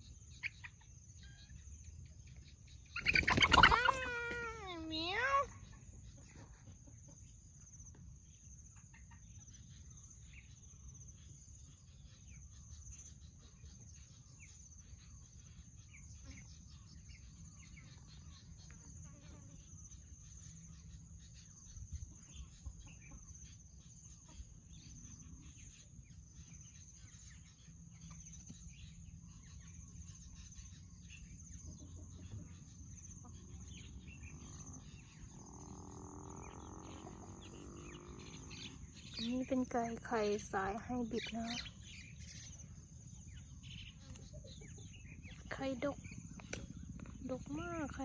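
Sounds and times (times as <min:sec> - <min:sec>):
hens clucking softly: 0:03.0 - 0:05.0
high insect drone: 0:32.4 - 0:44.2.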